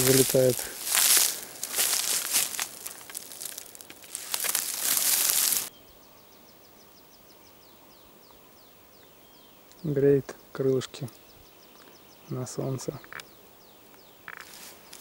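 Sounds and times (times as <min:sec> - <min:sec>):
dry leaf litter rustling: 0:00.0 - 0:05.7
bird chirping: 0:00.0 - 0:15.0.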